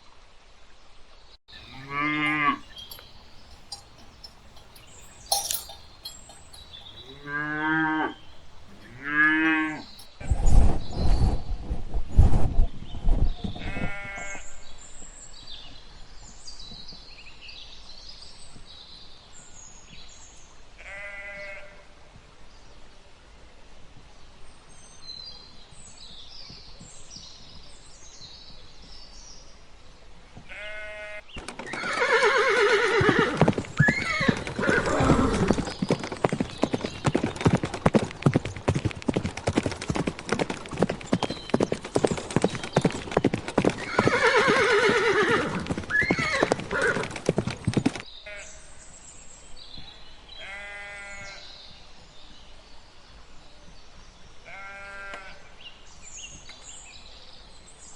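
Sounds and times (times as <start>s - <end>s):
small birds chirping: 1.5s - 10.0s
horse hooves clip-clopping: 1.5s - 10.1s, 33.0s - 48.0s
short bleating calls: 1.6s - 3.0s, 30.5s - 31.2s, 50.4s - 51.4s, 54.5s - 55.4s
horse whinnying: 1.6s - 10.0s, 31.7s - 35.7s, 43.8s - 47.3s.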